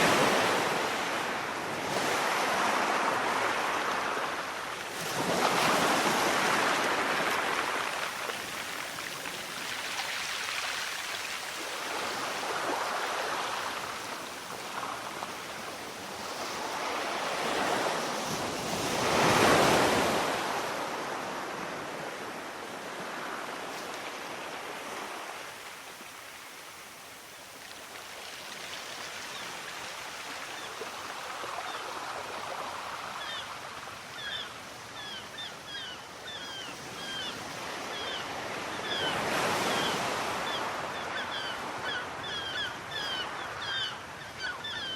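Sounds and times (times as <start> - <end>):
sea waves washing: 0.0 - 33.3.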